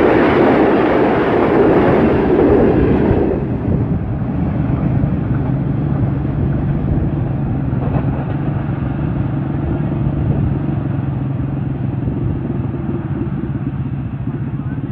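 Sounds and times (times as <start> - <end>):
vehicle engine idling: 10.0 - 14.9.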